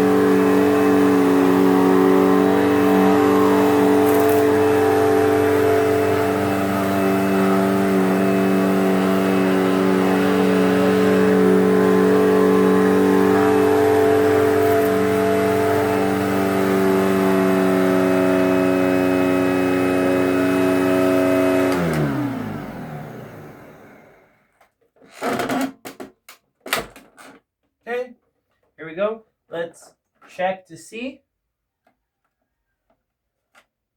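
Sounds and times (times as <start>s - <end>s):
vacuum cleaner motor running: 0.0s - 24.4s.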